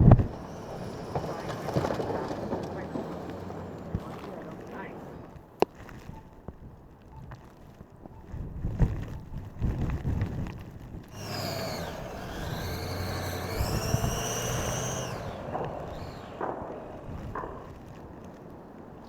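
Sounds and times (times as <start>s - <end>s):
low thumps and rumbling: 0.0s - 5.5s, 11.1s - 18.4s
engine whining: 0.0s - 5.7s, 11.1s - 19.0s.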